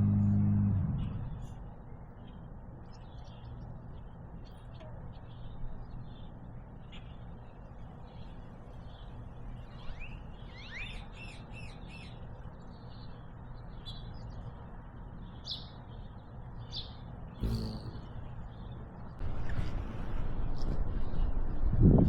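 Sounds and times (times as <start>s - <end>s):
steady low rumble: 0.0s - 4.1s
small birds chirping: 0.0s - 19.2s.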